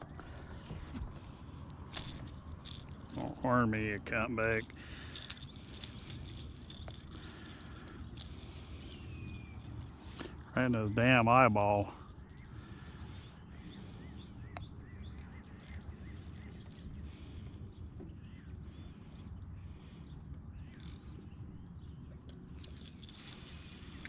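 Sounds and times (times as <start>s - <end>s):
birds chirping: 0.0s - 24.0s
rustle: 4.6s - 11.1s.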